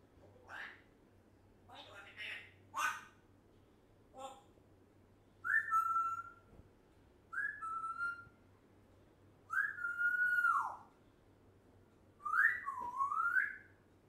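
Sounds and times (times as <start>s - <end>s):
parrot whistling: 5.4s - 6.5s, 7.3s - 8.4s, 9.5s - 10.9s, 12.2s - 13.8s.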